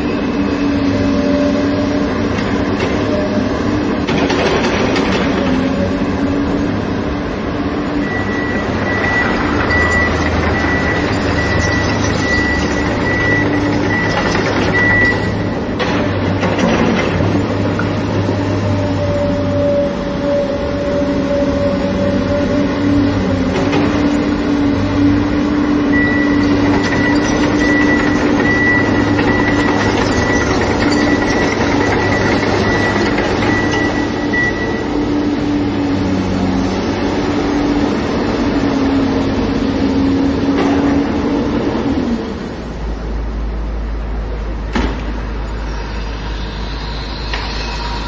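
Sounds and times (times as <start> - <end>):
diesel engine running: 0.0 - 48.0
thin high whine: 45.4 - 48.0.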